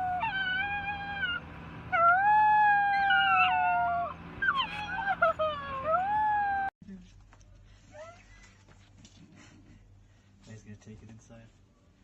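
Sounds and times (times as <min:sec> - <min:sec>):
animal wailing calls: 0:00.0 - 0:06.7.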